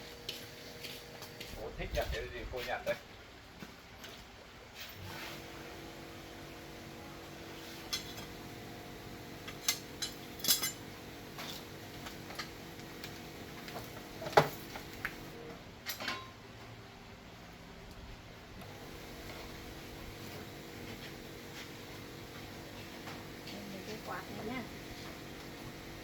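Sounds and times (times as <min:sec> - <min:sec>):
metal objects clinking: 0:09.5 - 0:10.8.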